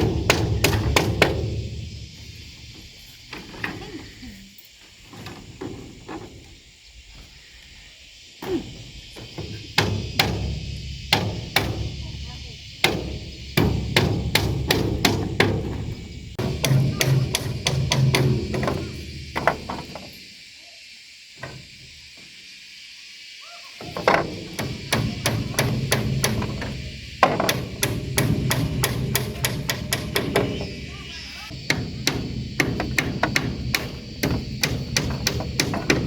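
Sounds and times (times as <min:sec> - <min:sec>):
rapid hammering blows: 0:00.0 - 0:02.1, 0:09.4 - 0:20.0, 0:24.0 - 0:36.0
insects buzzing: 0:00.0 - 0:36.0.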